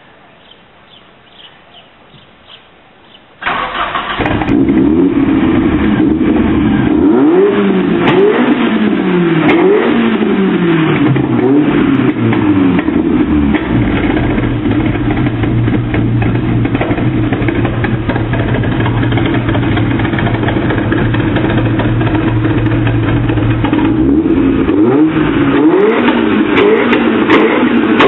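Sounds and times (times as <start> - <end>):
faint bird chirps: 0.0 - 3.4
car engine starting and revving: 3.4 - 28.0.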